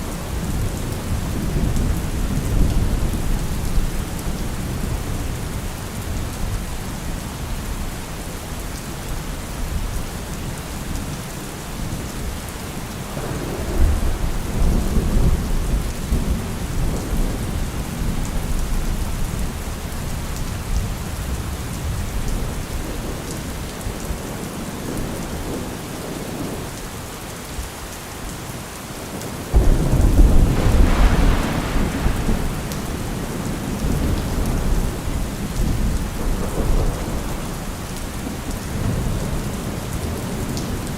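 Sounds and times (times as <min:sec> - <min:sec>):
steady rain falling: 0:00.0 - 0:40.9
thunder rumbling: 0:13.0 - 0:23.5, 0:29.5 - 0:40.9.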